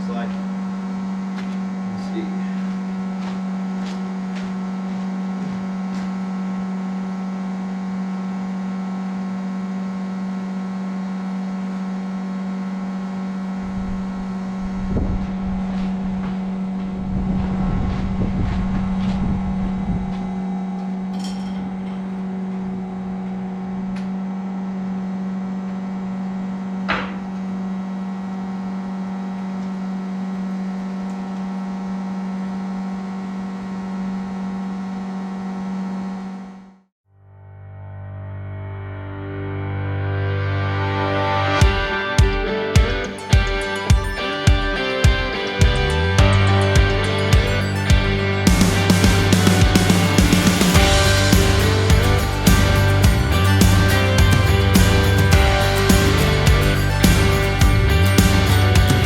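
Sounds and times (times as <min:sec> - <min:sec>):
steady mechanical hum: 0:00.0 - 0:36.7
sharp knock: 0:26.9 - 0:27.3.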